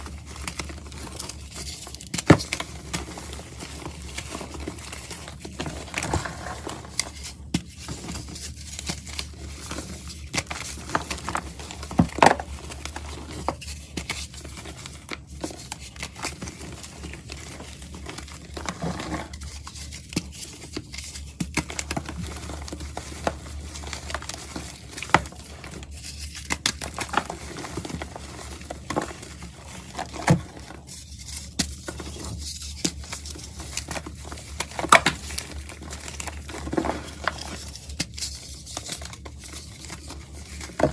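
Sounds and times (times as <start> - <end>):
crunching powdery material: 2.7 - 8.5.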